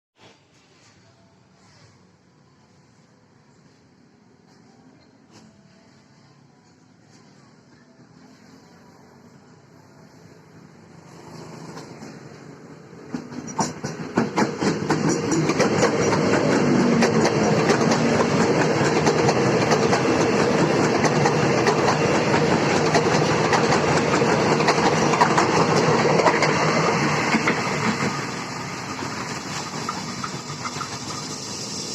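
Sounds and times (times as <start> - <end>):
electric train passing: 0.8 - 31.9
wheels clattering over rail joints: 13.1 - 26.6.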